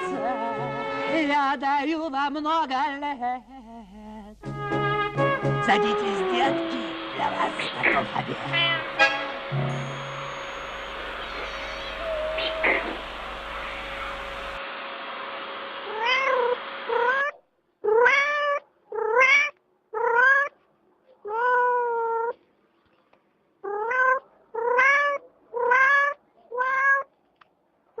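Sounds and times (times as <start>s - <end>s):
cat meowing: 8.4s - 9.0s, 10.5s - 14.6s, 15.9s - 20.6s, 21.2s - 22.4s, 23.6s - 27.2s.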